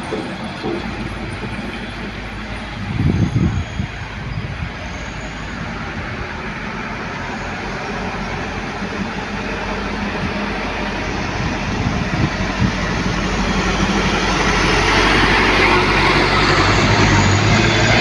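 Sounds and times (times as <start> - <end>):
low thumps: 0.0 - 3.5
heavy truck engine: 0.0 - 18.0
road noise: 0.0 - 18.0.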